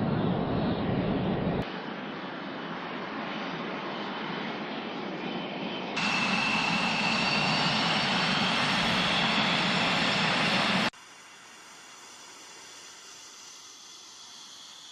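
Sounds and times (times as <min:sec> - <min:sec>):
high engine whine: 0:00.0 - 0:14.9
jet engine rushing: 0:05.5 - 0:14.9.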